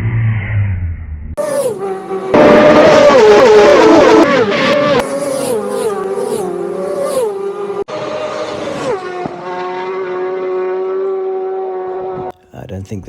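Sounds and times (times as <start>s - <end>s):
racing motorcycles passing: 1.4s - 12.3s.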